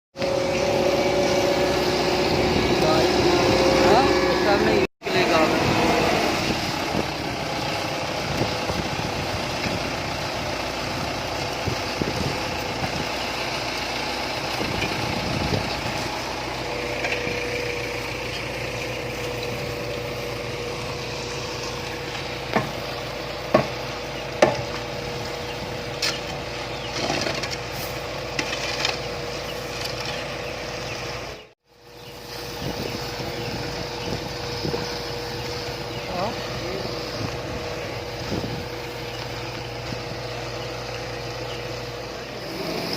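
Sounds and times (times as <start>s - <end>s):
construction machinery engine hum: 0.1s - 42.9s
sharp knocks: 23.5s - 23.8s, 24.4s - 24.8s.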